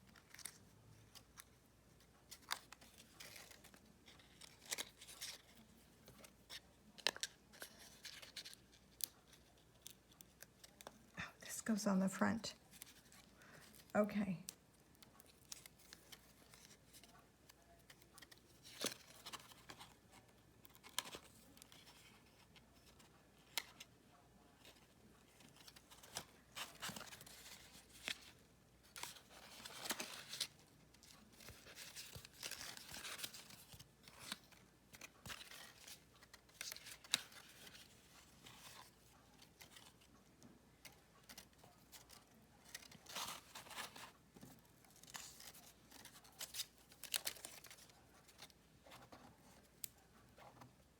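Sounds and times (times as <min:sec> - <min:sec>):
paper rustling and scraping: 0:24.6 - 0:40.1, 0:40.8 - 0:50.9.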